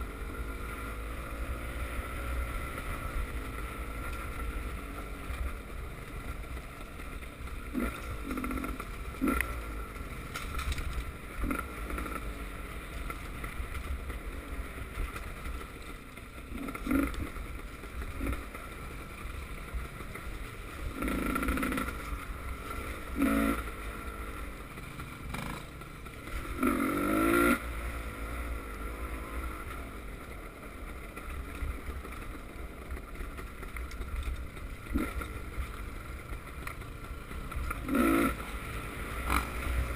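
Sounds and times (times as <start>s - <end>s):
motocross engines revving: 0.2s - 10.1s, 16.3s - 19.1s, 20.4s - 30.3s, 34.8s - 36.2s, 37.6s - 39.9s.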